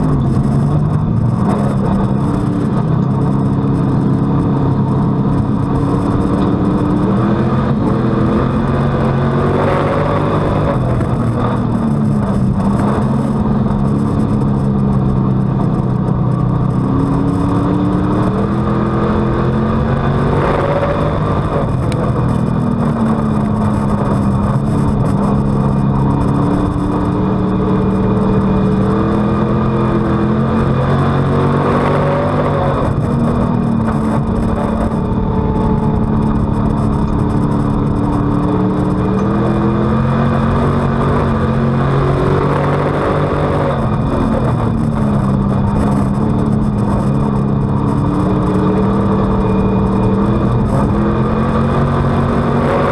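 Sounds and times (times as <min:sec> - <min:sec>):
race car engine revving: 0:00.0 - 0:52.9.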